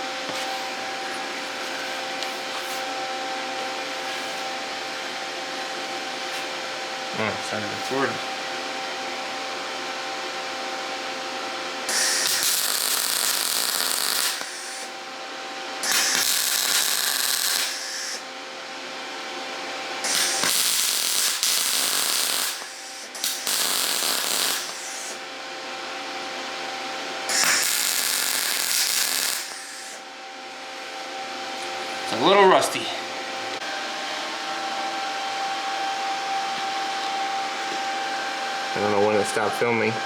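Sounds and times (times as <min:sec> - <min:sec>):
welder cooling fan humming: 0:00.0 - 0:40.0
welding arc crackle: 0:11.9 - 0:15.0, 0:15.8 - 0:18.2, 0:20.0 - 0:25.2, 0:27.3 - 0:30.0.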